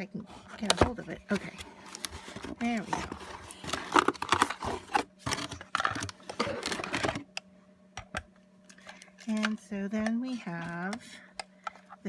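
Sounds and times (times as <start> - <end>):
packaging crackling and rustling: 0.3 - 7.3.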